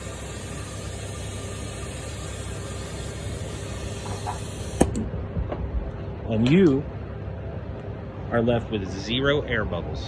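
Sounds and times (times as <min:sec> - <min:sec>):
vacuum filler rushing noise: 0:00.0 - 0:05.0.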